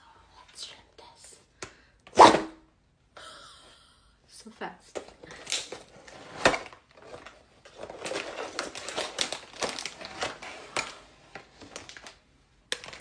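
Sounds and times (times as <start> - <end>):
plastic packaging crinkling: 5.3 - 13.0.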